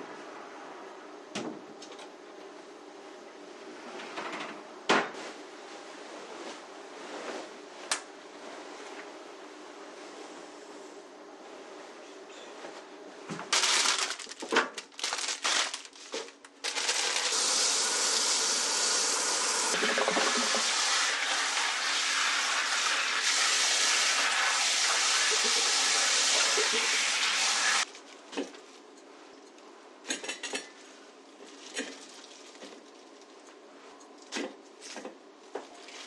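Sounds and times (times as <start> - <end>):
water running from a tap: 16.7 - 27.8.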